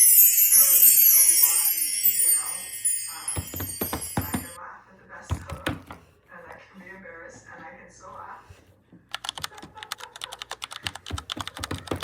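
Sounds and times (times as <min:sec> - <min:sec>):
chimes ringing: 0:00.0 - 0:04.6.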